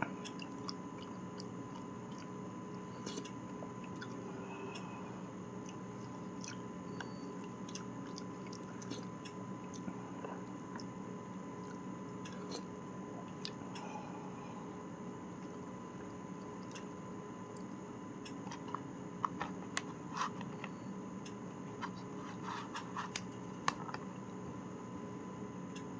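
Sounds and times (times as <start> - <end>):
chewing: 0.0 - 5.0, 5.6 - 11.0, 11.6 - 13.9
steady background hum: 0.0 - 25.9.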